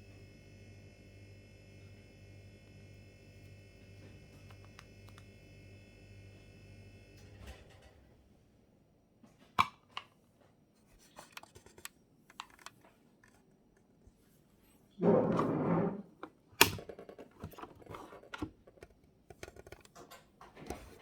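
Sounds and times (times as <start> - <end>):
coffee maker humming: 0.0 - 7.9.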